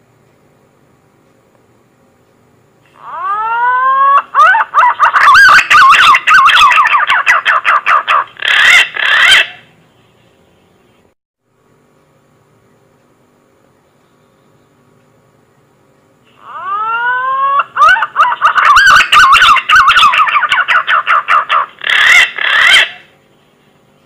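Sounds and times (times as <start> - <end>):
pigeon whistling song: 3.1 - 9.6, 16.5 - 23.1.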